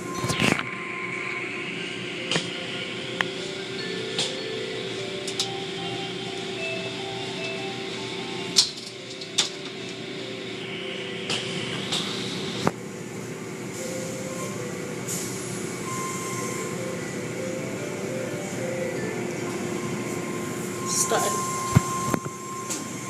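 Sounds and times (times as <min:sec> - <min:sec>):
car wash machinery humming: 0:00.0 - 0:23.0.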